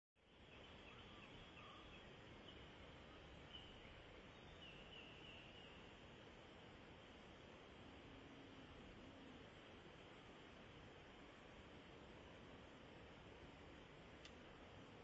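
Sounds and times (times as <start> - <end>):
faint high bird chirps: 0.2 - 5.9
faint hiss: 0.2 - 15.0.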